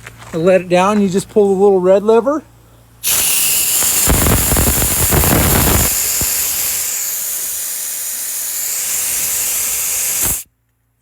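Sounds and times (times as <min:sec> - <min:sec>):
air jack hissing: 0:03.0 - 0:10.5.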